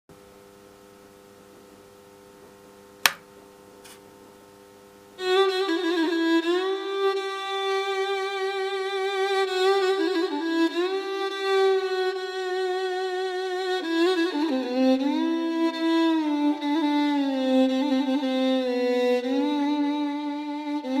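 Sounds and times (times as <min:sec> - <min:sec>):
sharp click: 0:03.0 - 0:04.0
bowed string melody: 0:05.2 - 0:21.0.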